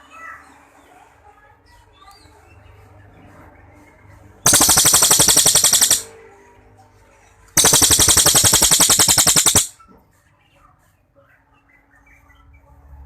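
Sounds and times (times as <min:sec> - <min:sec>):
songbird rattling trills: 0:04.5 - 0:06.1, 0:07.6 - 0:09.7.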